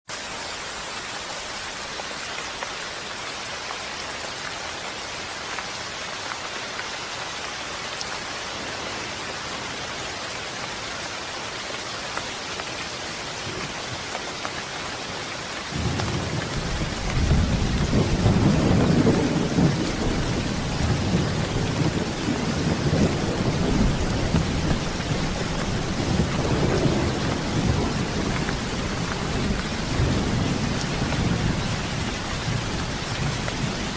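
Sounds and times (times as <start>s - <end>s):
steady rain hissing: 0.1s - 33.9s
thunder rumbling: 15.7s - 33.9s.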